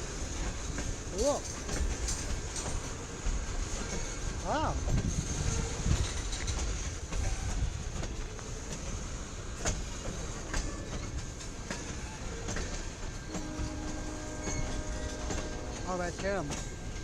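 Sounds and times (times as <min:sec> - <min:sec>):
freight train rolling by: 0:00.0 - 0:17.0
train wheels clicking over rail joints: 0:00.0 - 0:17.0
distant locomotive horn: 0:13.3 - 0:15.9.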